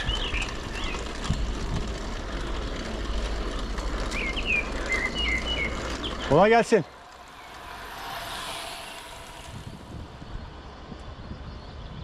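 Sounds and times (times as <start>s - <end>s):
low rumble: 0.0s - 11.4s
steady rushing noise: 0.0s - 11.5s
bird chirps: 4.1s - 6.5s.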